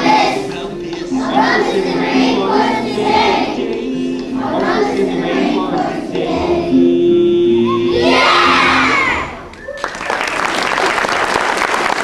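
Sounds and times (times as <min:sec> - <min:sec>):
instrumental accompaniment: 0:00.0 - 0:09.4
children's choir singing: 0:00.0 - 0:09.5.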